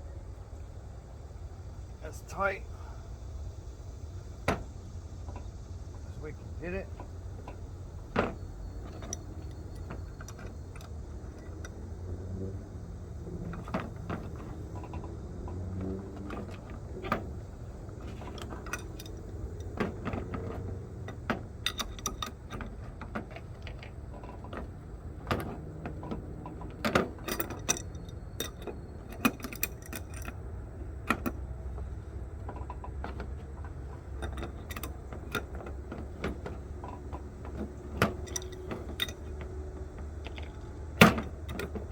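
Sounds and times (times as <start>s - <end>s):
low steady hum: 0.0s - 41.9s
metal tools clinking: 18.0s - 22.6s, 27.2s - 30.4s, 34.0s - 39.4s.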